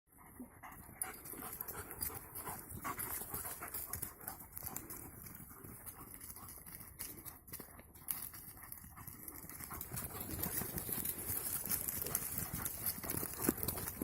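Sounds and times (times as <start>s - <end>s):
dog panting: 0.1s - 14.0s
rustling: 8.2s - 14.0s.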